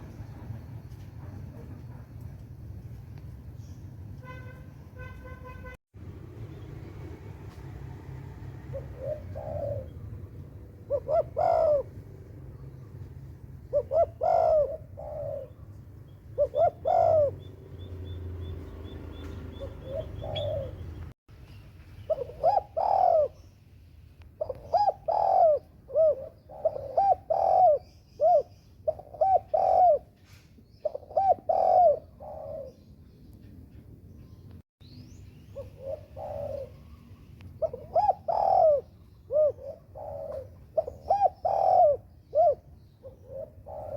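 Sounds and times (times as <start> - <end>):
doves cooing: 8.1 - 21.1, 22.0 - 23.5, 24.4 - 32.9, 35.5 - 43.9.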